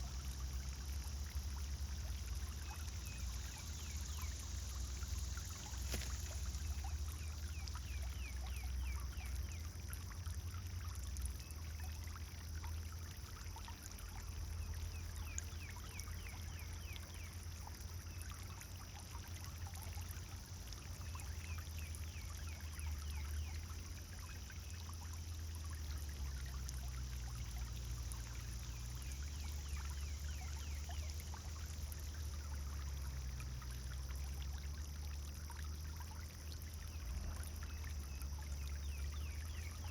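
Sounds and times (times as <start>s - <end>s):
fountain water pouring: 0.0s - 39.9s.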